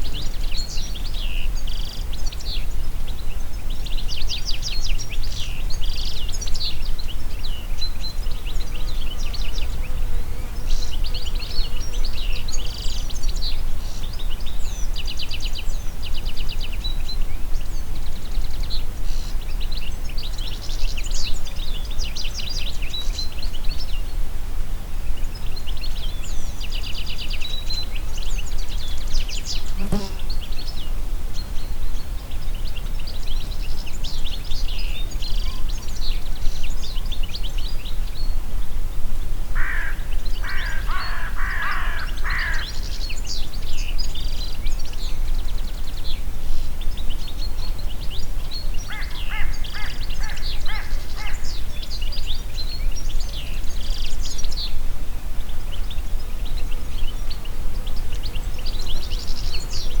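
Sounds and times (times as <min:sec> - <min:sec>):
wind through forest: 0:00.0 - 1:00.0
small birds chirping: 0:25.1 - 0:38.4, 0:39.6 - 1:00.0.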